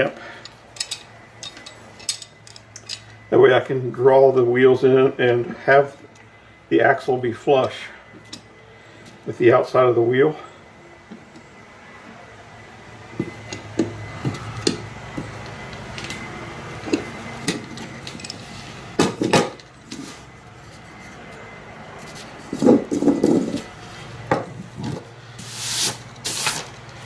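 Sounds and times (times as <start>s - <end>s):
short scraping hisses: 25.4s - 26.7s.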